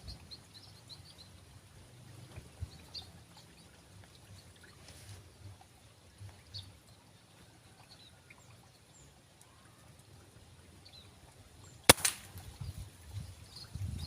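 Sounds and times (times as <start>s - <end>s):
air rifle shot: 11.9s - 12.6s.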